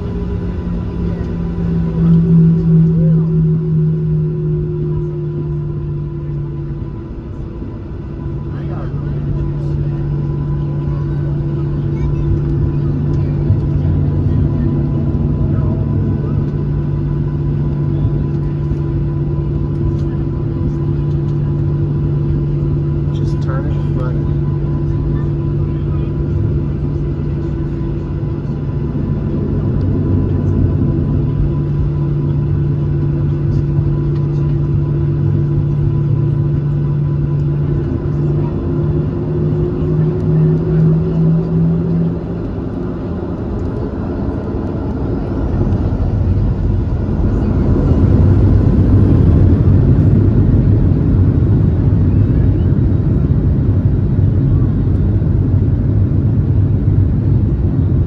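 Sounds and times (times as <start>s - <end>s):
deep jet engine rumble: 0.0s - 58.0s
jet engines humming and whining: 0.0s - 58.0s.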